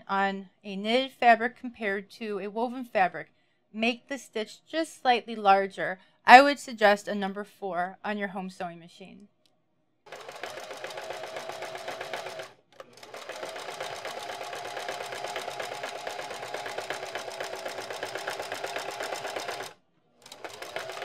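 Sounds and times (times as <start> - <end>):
sewing machine stitching: 10.1 - 21.0.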